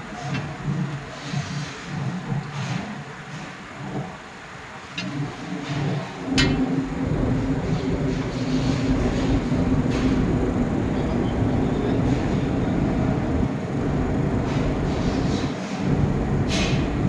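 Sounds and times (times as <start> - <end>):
constant low hum: 5.0 - 17.0
melting furnace rumbling: 5.1 - 17.0.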